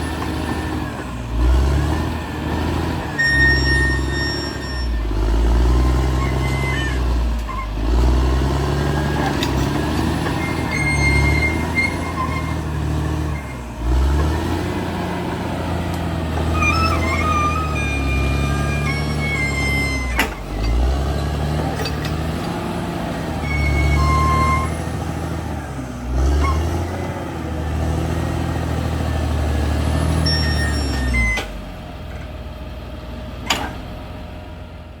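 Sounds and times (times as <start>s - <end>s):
bulldozer diesel engine under load: 0.0s - 35.0s
steel tracks squealing: 2.6s - 8.1s, 8.7s - 14.6s, 16.4s - 22.6s, 23.4s - 25.0s, 29.9s - 31.6s.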